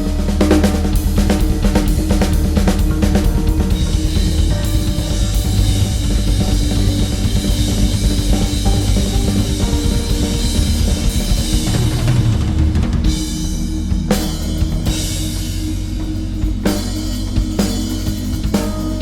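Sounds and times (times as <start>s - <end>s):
drum kit playing fast: 0.0s - 19.0s
sustained held notes: 0.0s - 19.0s.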